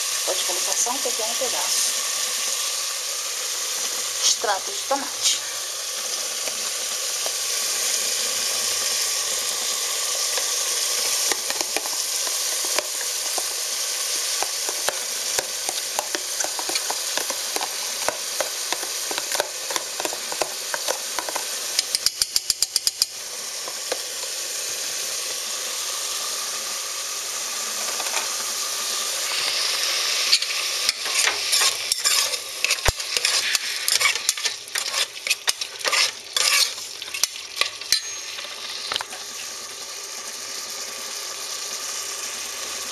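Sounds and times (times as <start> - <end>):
onion and tomato sizzling in oil: 0.0 - 42.9
spoon scraping and knocking pot: 11.3 - 13.4, 14.4 - 23.1, 30.3 - 39.0.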